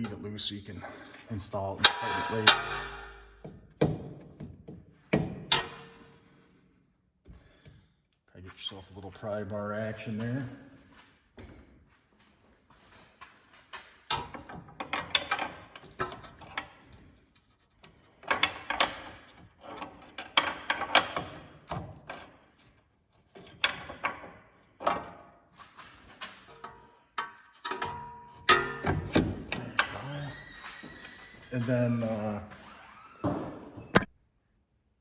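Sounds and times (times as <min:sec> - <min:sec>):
pry bar clanking on metal: 0:01.8 - 0:03.4, 0:05.4 - 0:06.1, 0:26.3 - 0:30.1.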